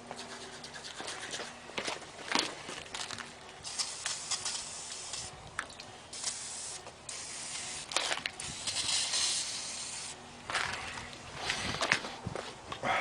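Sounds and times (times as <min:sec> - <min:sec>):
aerosol can spraying: 0:03.6 - 0:05.3, 0:06.1 - 0:10.2.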